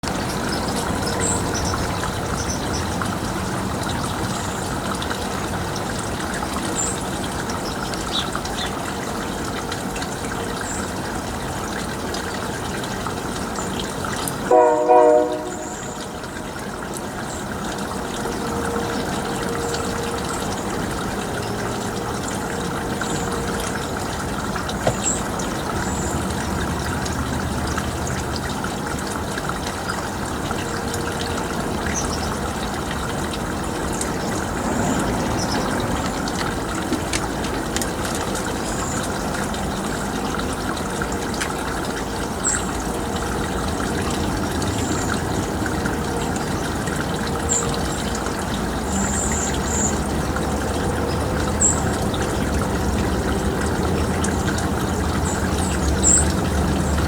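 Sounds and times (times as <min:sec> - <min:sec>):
loud short horn blast: 0:14.5 - 0:16.2.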